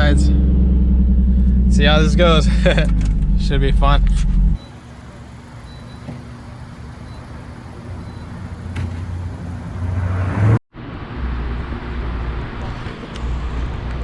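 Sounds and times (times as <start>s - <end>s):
car engine droning: 4.6s - 10.6s.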